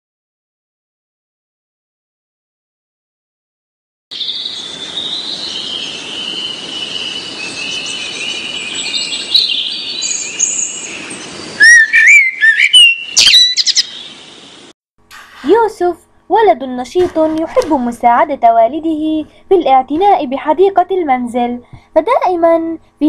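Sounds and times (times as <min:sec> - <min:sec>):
birds chirping in chorus: 0:04.1 - 0:14.6
close bird chirps and whistles: 0:04.2 - 0:14.2.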